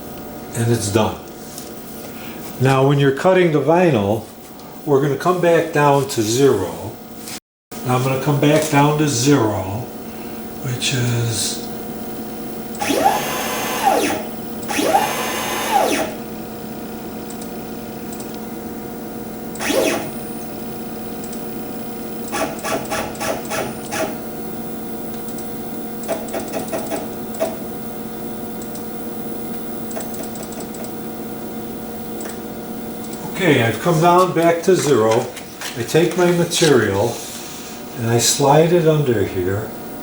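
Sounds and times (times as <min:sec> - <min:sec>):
router motor whining: 0:12.8 - 0:16.3, 0:19.6 - 0:20.2.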